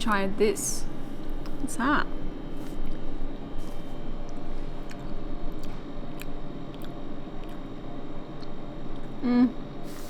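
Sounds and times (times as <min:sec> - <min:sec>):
person chewing food: 0:02.6 - 0:09.2.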